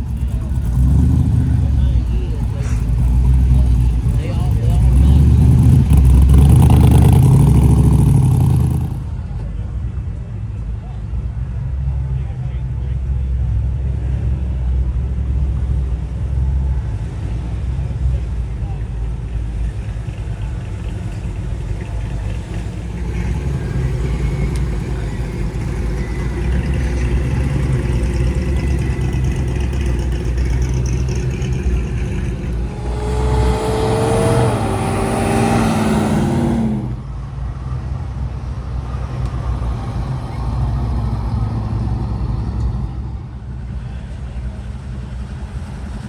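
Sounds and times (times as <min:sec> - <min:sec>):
car passing close: 0:00.0 - 0:09.5, 0:17.9 - 0:37.2
car engines rumbling: 0:00.0 - 0:46.0.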